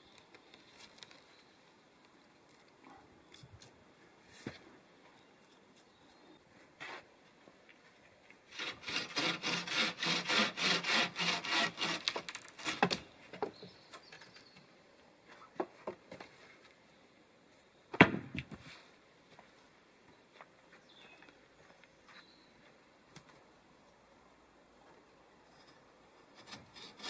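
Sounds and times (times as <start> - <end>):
rhythmic strokes on wood: 8.5 - 12.9.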